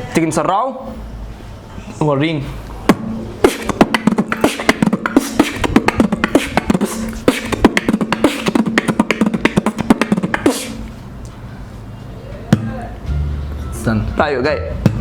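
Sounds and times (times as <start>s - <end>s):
human beatboxing: 2.8s - 11.0s.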